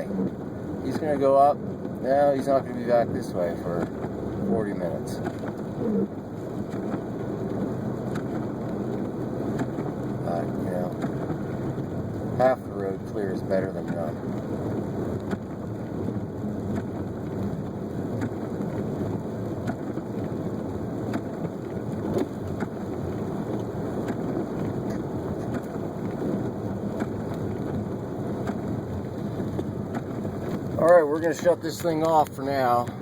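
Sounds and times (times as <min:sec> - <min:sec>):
car driving on slushy road: 0:00.0 - 0:33.0.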